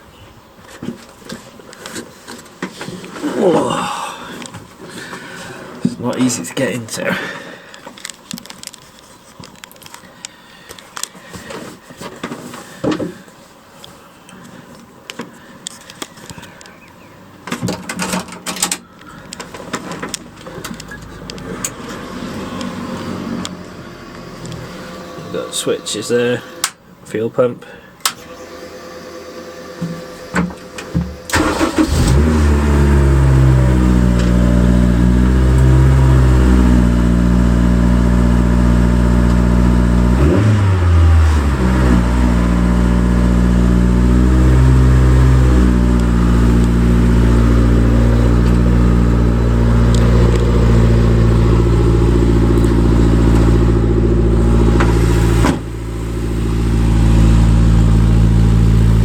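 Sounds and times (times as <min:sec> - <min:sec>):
car engine starting and revving: 0:20.0 - 0:25.6, 0:28.2 - 0:59.0.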